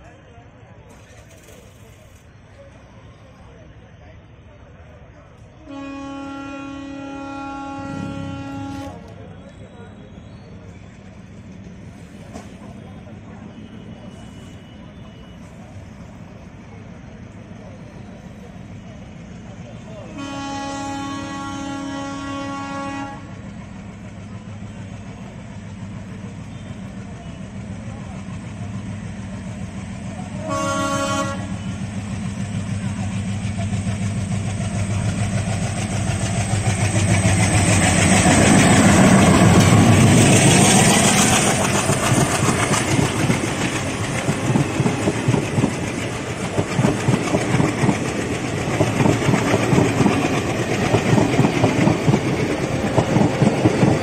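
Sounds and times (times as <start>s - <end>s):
diesel locomotive engine: 0.0s - 54.0s
locomotive horn blasts: 5.6s - 9.1s, 20.1s - 23.3s, 30.5s - 31.7s.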